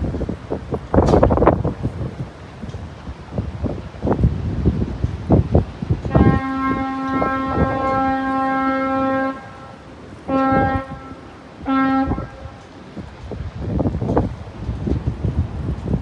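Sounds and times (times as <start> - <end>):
wind buffeting microphone: 0.0 - 16.0
ship horn blasts: 6.0 - 12.7.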